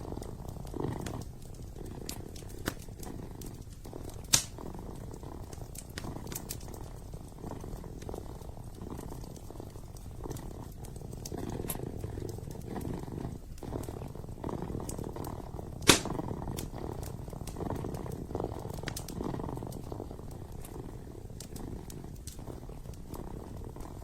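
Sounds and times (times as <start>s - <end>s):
fireplace crackling and popping: 0.0s - 24.0s
kitten purring: 0.0s - 24.0s.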